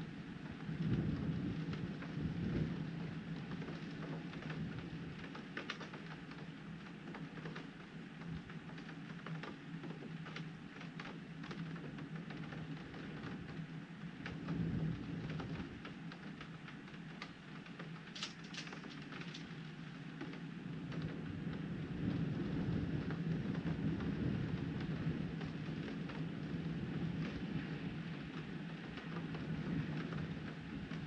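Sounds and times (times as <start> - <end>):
heavy rain on window glass: 0.0 - 31.0.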